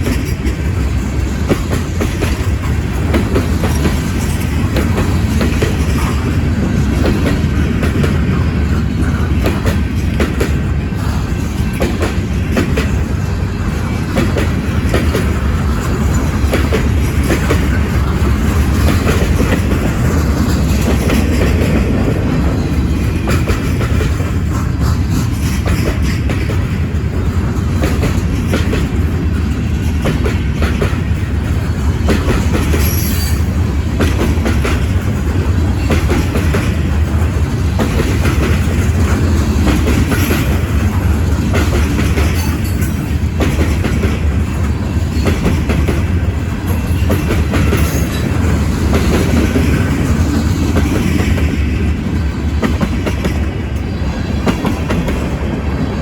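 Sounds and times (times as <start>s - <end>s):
freight train rumbling past: 0.0s - 56.0s
wheels clicking over rail joints: 0.0s - 56.0s
high wheel squeals: 32.8s - 33.5s.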